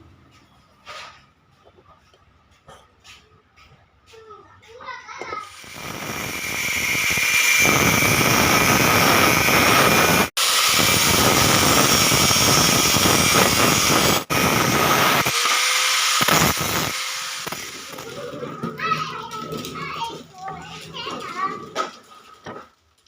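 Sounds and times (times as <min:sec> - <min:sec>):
power tool running: 0:05.4 - 0:20.1.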